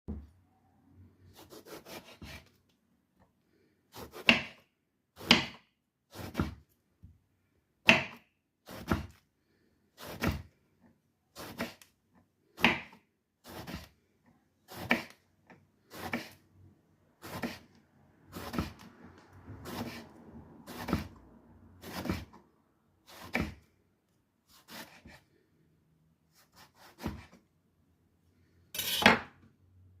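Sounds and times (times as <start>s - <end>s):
knife cutting on wooden board: 1.4s - 2.6s, 4.0s - 4.6s, 5.2s - 6.6s, 7.9s - 9.2s, 10.0s - 10.5s, 11.4s - 11.9s, 12.6s - 14.0s, 14.7s - 15.2s, 15.9s - 16.4s, 17.2s - 18.9s, 19.6s - 20.1s, 20.7s - 21.2s, 21.8s - 22.4s, 23.1s - 23.6s, 24.5s - 25.3s, 26.3s - 27.4s, 28.8s - 29.3s.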